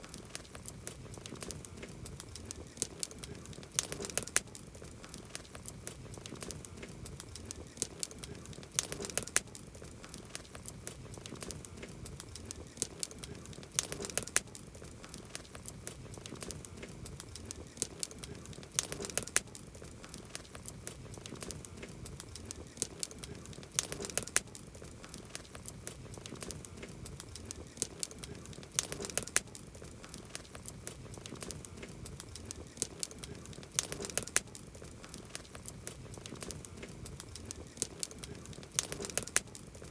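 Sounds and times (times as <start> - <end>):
campfire wood crackling and popping: 0.0 - 39.9.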